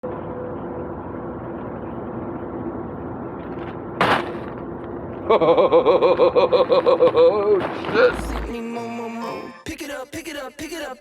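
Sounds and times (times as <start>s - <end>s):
vehicle engine droning: 0.0s - 8.8s.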